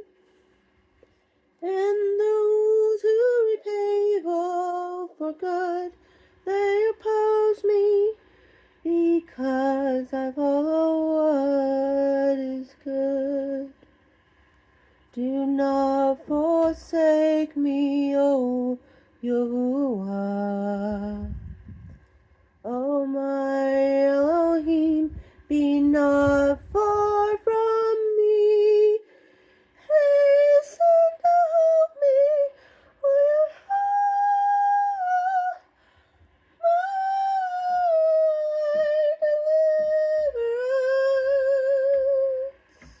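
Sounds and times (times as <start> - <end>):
woman singing long notes: 29.8 - 35.8, 36.6 - 43.0.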